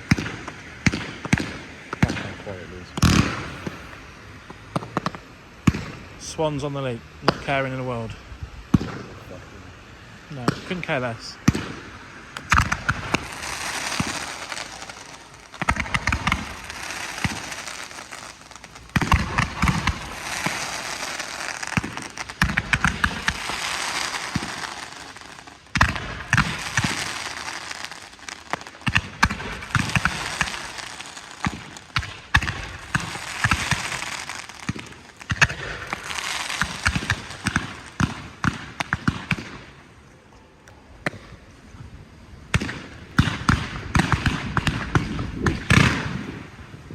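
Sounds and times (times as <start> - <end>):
firework launch thumps: 0.0 - 6.0, 10.4 - 39.6
firework bursts crackling and fizzing: 0.0 - 46.9.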